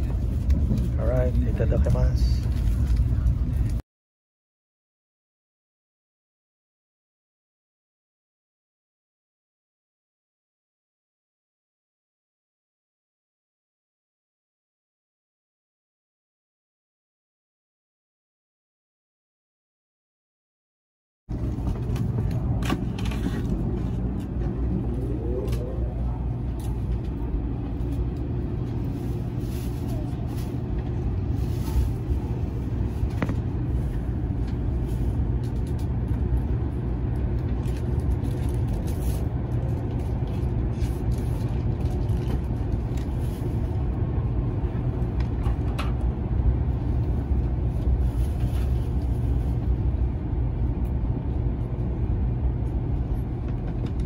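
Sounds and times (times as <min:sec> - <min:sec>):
train cabin rumble: 0:00.0 - 0:03.8, 0:21.3 - 0:54.0.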